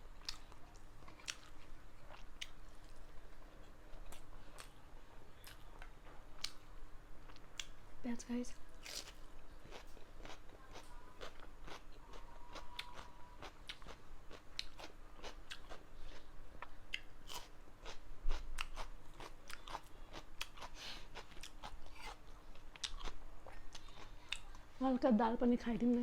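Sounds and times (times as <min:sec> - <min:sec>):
crunchy chewing of raw onion: 0:00.2 - 0:04.8, 0:08.8 - 0:24.6.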